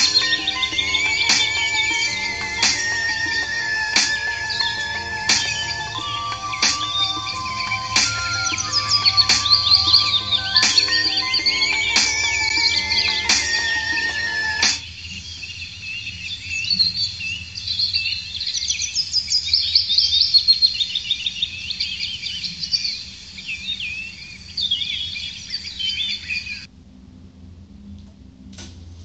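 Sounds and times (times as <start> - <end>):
birds chirping and singing: 0.0 - 14.8.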